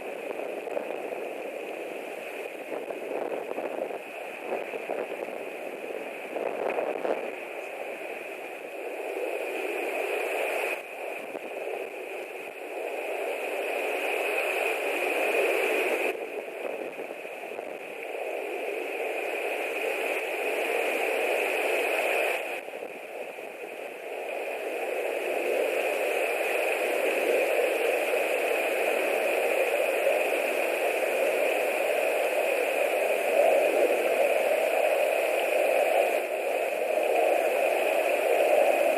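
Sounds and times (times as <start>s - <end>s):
steady hiss: 0.0s - 38.9s
wind buffeting a microphone: 2.5s - 7.4s.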